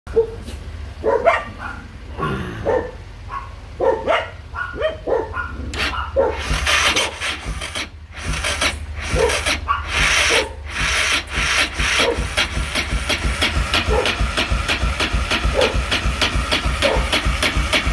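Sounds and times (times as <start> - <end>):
engine turning over without firing: 5.6 - 17.9.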